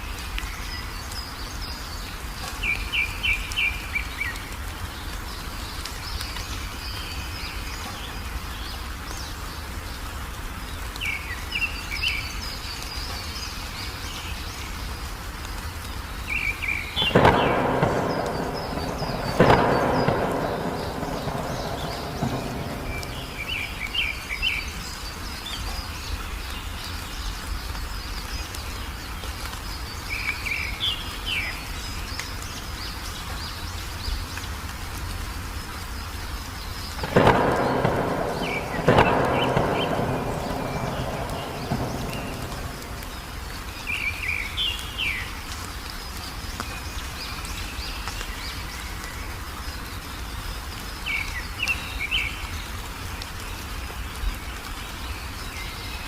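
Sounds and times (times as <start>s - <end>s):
steady rain: 0.0s - 56.0s
bird chirps: 16.3s - 25.6s, 37.0s - 45.3s
thunderclaps rumbling: 17.0s - 24.9s, 37.0s - 44.4s.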